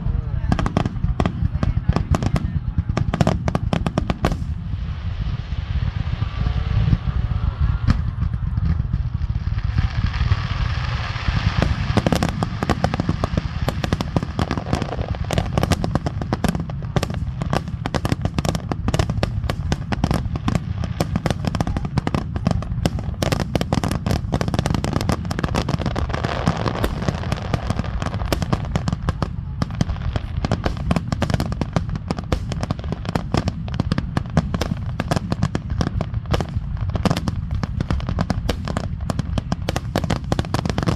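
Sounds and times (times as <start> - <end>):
low rumble: 0.0 - 23.6.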